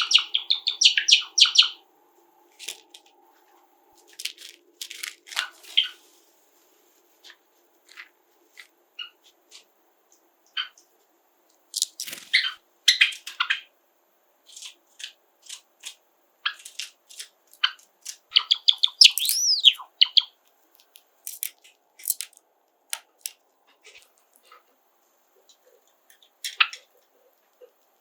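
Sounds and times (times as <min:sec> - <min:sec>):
bird warbling whistled song: 0:00.0 - 0:01.8, 0:18.3 - 0:20.4
sparrows chirping: 0:00.0 - 0:01.9, 0:17.6 - 0:20.4.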